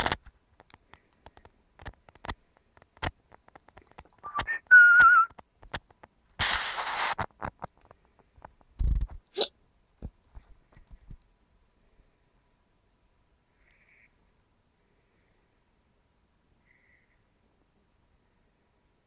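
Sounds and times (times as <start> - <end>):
faint clicks: 0.0 - 6.2, 13.6 - 14.2.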